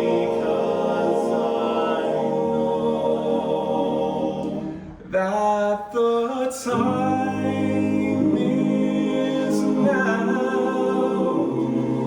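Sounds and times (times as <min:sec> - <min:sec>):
male vocal group singing a cappella: 0:00.0 - 0:12.0.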